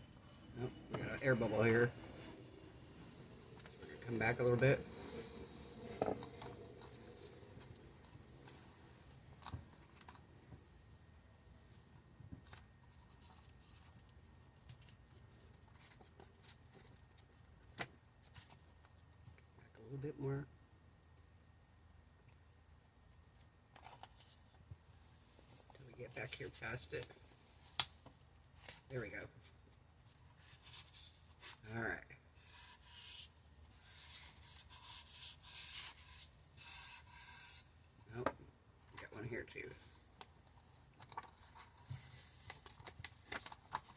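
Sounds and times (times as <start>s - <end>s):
vinyl wrap rubbed onto tumbler: 32.4s - 37.8s
soft clicks of vinyl wrap: 40.1s - 43.9s.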